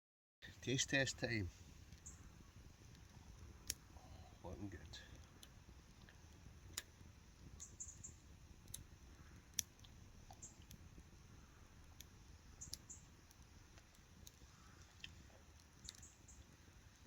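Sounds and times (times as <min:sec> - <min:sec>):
faint sharp clicks: 0:02.9 - 0:03.8, 0:04.8 - 0:11.1, 0:11.8 - 0:17.0.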